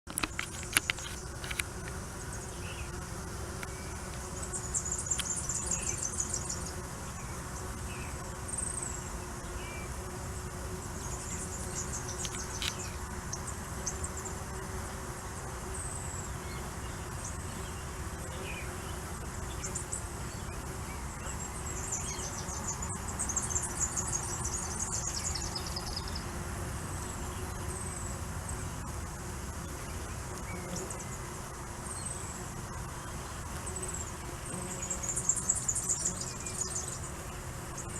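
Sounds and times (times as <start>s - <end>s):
bees buzzing: 0.1s - 37.9s.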